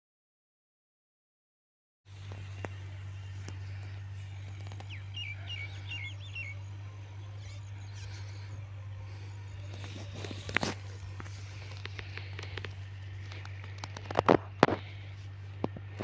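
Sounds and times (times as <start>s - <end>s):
bird chirping: 2.1s - 14.2s
steady low hum: 2.1s - 16.0s.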